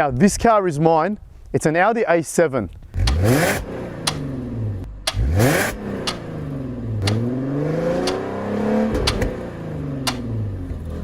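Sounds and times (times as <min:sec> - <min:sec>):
car engine revving: 0:02.9 - 0:11.0.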